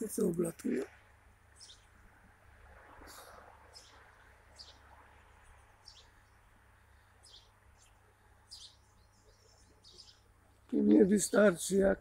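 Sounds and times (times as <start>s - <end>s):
small bird chirping: 1.5s - 1.9s, 3.0s - 4.9s, 5.8s - 11.5s.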